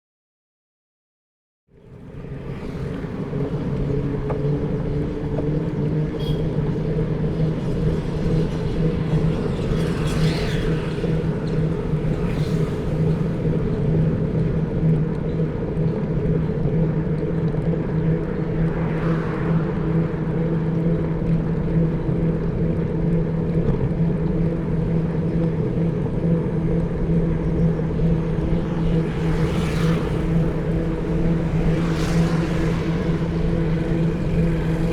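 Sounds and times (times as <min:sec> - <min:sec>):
low mechanical drone: 0:01.7 - 0:34.9
faint higher sound passing: 0:17.9 - 0:22.4.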